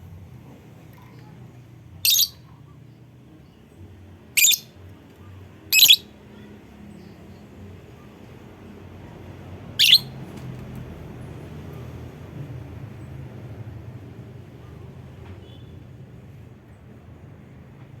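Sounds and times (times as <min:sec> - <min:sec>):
lovebird shrill calls: 0:02.0 - 0:02.4, 0:04.4 - 0:04.7, 0:05.7 - 0:06.0, 0:09.8 - 0:10.2.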